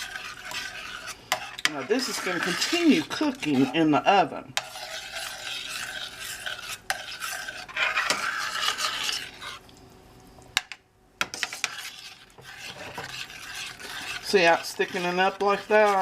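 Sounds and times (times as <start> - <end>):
spoon stirring thick filling: 0.0 - 9.8, 11.2 - 16.0.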